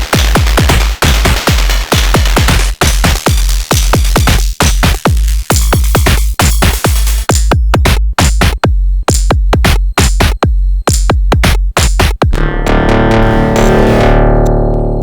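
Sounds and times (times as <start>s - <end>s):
hi-hat and percussion: 0.0s - 12.4s
techno kick drum: 0.0s - 15.0s
sustained synth tone: 12.3s - 15.0s.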